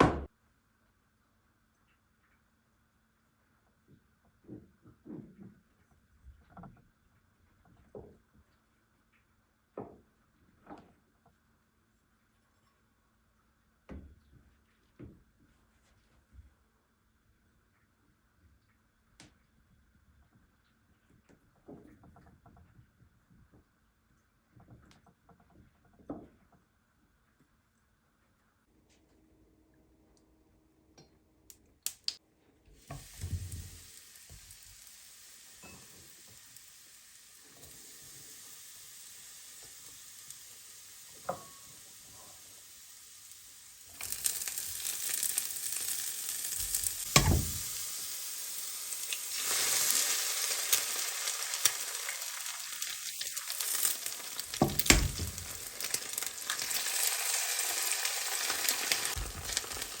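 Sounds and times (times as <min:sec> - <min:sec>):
food sizzling in a pan: 0:32.8 - 1:00.0.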